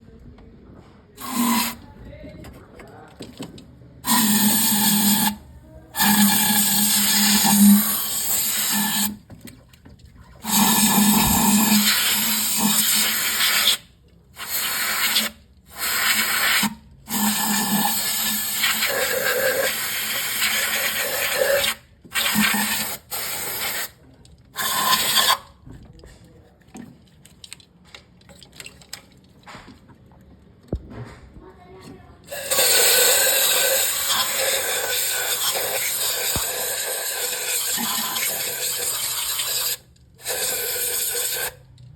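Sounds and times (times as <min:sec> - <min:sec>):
hissing spray bursts: 0:01.2 - 0:01.8, 0:04.0 - 0:05.4, 0:06.0 - 0:09.2, 0:10.4 - 0:13.8, 0:14.4 - 0:24.0, 0:24.6 - 0:25.4, 0:32.3 - 0:41.6.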